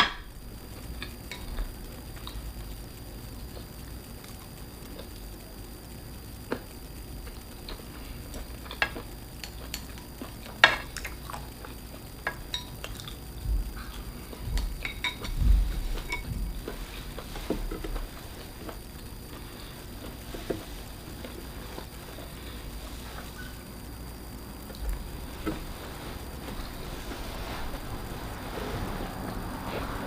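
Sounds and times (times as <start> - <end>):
utensils clinking against dishes: 12.3 - 13.2, 14.8 - 15.4, 16.0 - 16.4
low thumps: 13.4 - 18.1.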